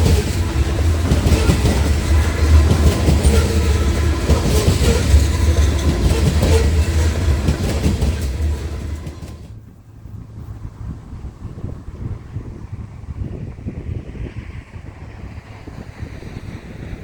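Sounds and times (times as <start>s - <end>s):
wheels clacking over rail joints: 0.0s - 9.6s
train wheels rumbling on track: 0.0s - 17.0s.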